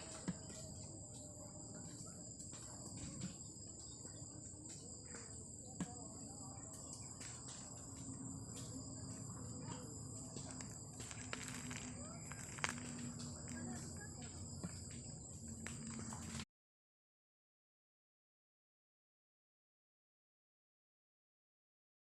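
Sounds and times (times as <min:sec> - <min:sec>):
insects chirping: 0:00.0 - 0:16.4.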